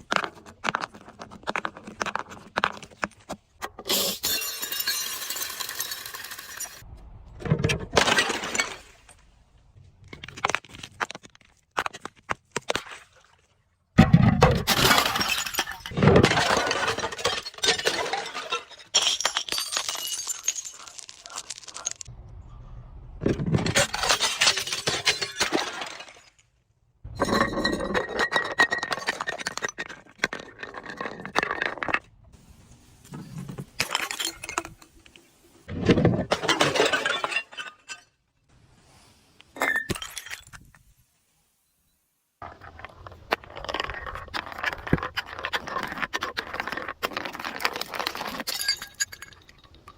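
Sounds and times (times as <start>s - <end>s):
glass crunching and cracking: 14.7s - 22.1s, 45.4s - 49.9s.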